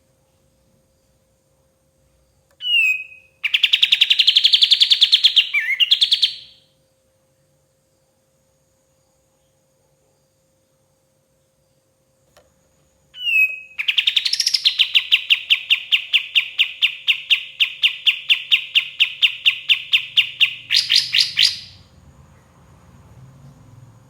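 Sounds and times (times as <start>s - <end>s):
bulbul singing: 2.6s - 6.6s, 13.2s - 21.9s.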